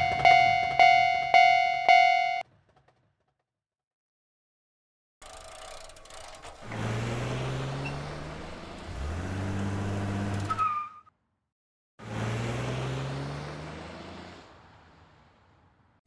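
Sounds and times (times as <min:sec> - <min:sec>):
car engines pulling away: 0:06.0 - 0:10.8, 0:12.0 - 0:16.0.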